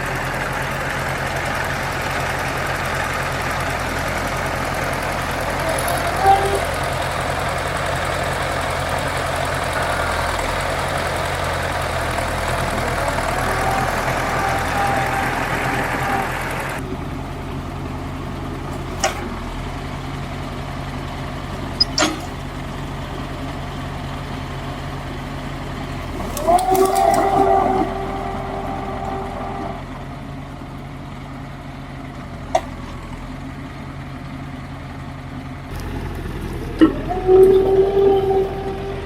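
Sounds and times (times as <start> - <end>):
engine idling: 0.0 - 39.0
sharp clicks: 21.8 - 22.4.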